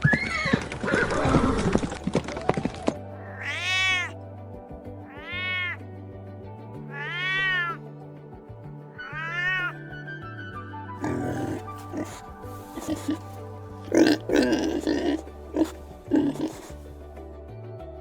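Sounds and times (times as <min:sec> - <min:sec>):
background music: 0:01.4 - 0:18.0
cat meowing: 0:03.2 - 0:04.1, 0:05.1 - 0:05.8, 0:06.9 - 0:07.8, 0:09.0 - 0:09.8.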